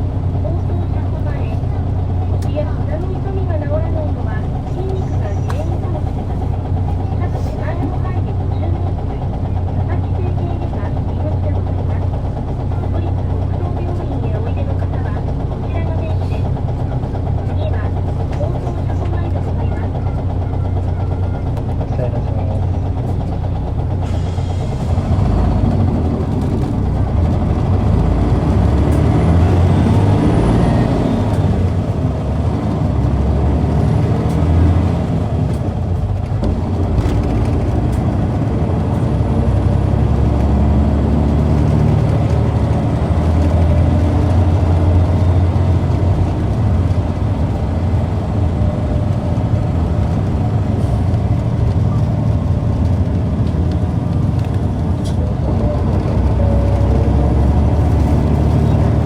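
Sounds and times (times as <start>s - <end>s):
bus diesel engine with whine: 0.0s - 59.0s.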